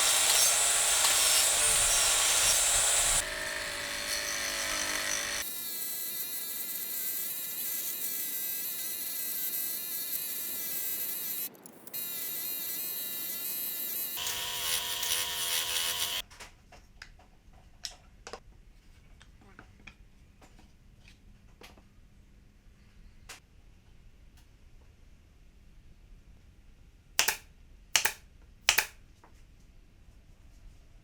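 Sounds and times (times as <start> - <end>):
small power tool buzzing: 0.0 - 16.2, 27.2 - 27.4, 28.0 - 29.0.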